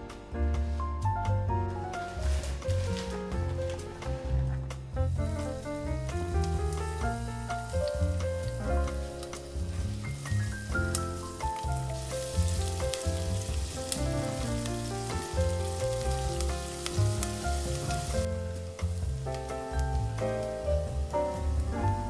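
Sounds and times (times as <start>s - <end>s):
background music: 0.0s - 22.0s
food sizzling in a frying pan: 5.2s - 22.0s.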